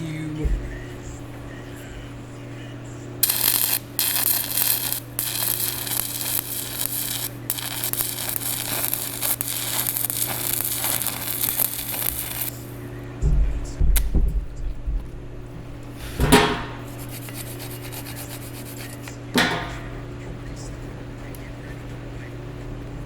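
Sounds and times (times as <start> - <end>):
steady electrical hum: 0.0 - 23.0
electric arc welding crackling: 3.2 - 12.8, 17.0 - 18.8
low knocks: 13.2 - 15.2.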